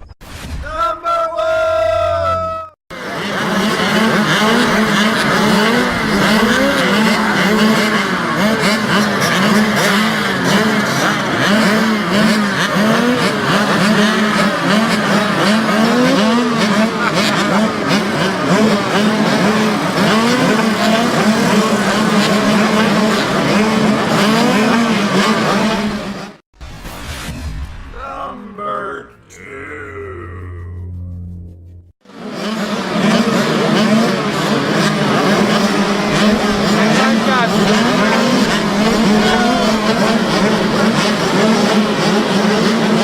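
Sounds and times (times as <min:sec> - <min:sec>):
mini motocross bikes revving: 0:02.9 - 0:26.4, 0:32.1 - 0:43.0.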